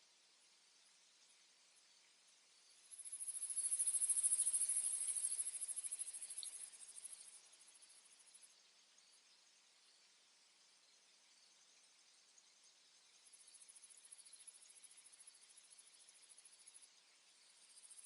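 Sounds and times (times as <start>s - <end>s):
high-pitched insect trill: 2.6s - 9.2s, 13.1s - 18.0s.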